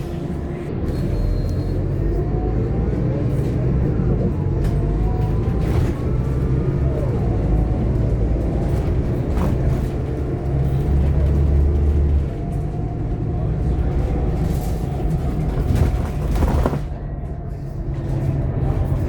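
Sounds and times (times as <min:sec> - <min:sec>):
bus engine rumble: 0:00.0 - 0:19.0
body rattles and knocks: 0:13.8 - 0:17.2.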